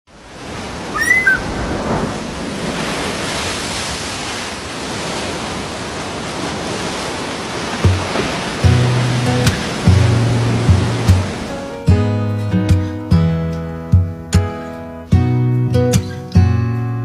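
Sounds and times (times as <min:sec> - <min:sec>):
surf rushing: 0:00.1 - 0:11.9
bird chirps: 0:00.9 - 0:01.6.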